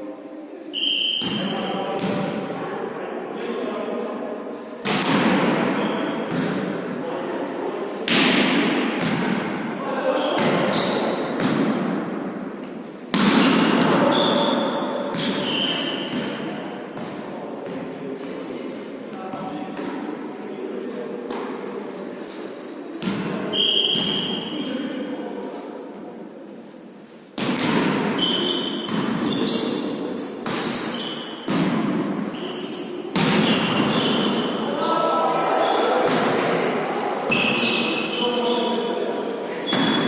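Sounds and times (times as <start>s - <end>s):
echoing hall noise: 0.0s - 40.0s
shoe squeaks: 0.7s - 1.7s, 7.3s - 7.7s, 10.2s - 11.2s, 14.1s - 16.1s, 23.5s - 24.4s, 28.2s - 31.5s, 32.3s - 34.5s, 37.3s - 38.9s
volleyball hit: 8.1s - 9.4s, 27.4s - 28.2s, 30.4s - 32.3s, 33.1s - 34.4s.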